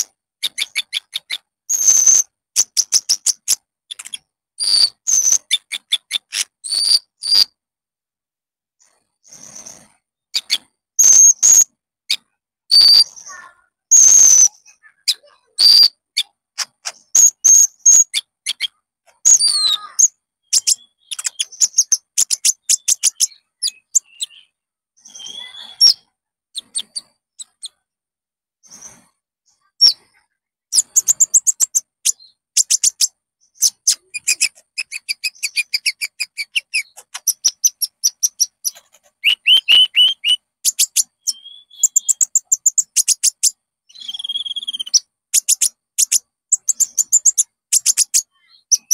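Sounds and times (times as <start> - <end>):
songbird singing: 8.8 - 27.8, 28.7 - 48.9.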